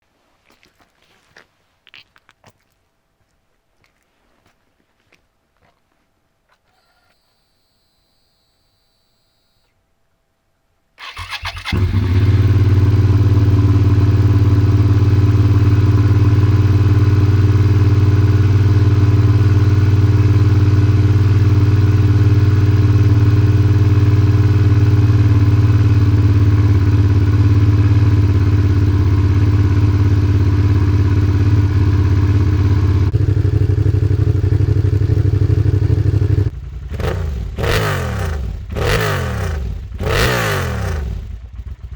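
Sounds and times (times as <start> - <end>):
motorcycle engine idling loudly: 11.1 - 41.9.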